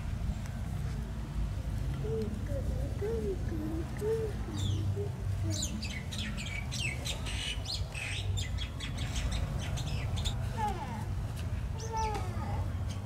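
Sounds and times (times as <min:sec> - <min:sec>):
steady low rumble: 0:00.0 - 0:13.0
birds chirping and squawking: 0:02.7 - 0:10.6.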